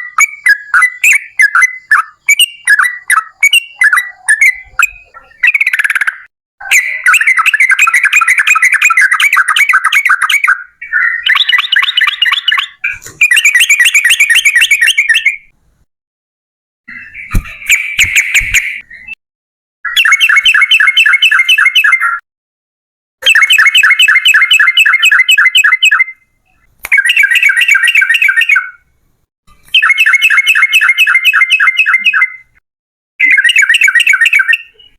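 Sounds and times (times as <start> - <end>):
bird singing rolling chatter: 0.0 - 15.5, 19.9 - 22.2, 23.2 - 28.9, 29.6 - 32.6, 33.2 - 34.9.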